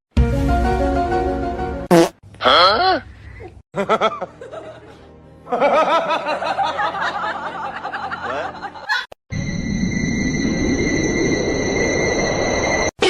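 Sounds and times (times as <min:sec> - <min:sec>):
background music: 0:00.1 - 0:02.0, 0:03.8 - 0:09.0.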